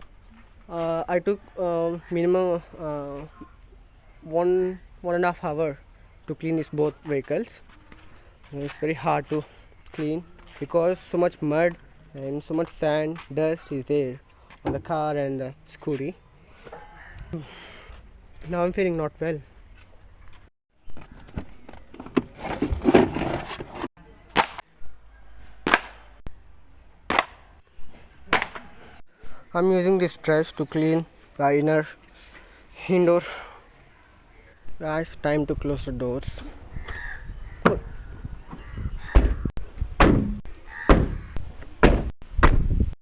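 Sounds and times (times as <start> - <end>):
car doors slamming: 40.0 - 41.2.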